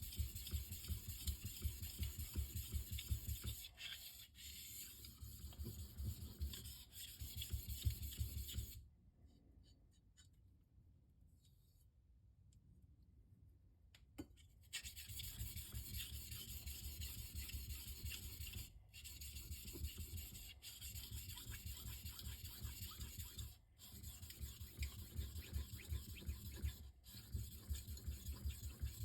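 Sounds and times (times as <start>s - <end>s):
knife scraping on whetstone: 0.1s - 8.2s.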